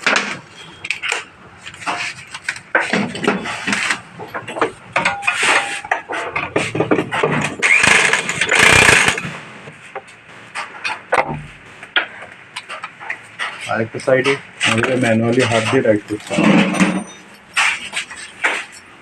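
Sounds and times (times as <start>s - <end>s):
power impact wrench bursts: 7.6s - 9.6s.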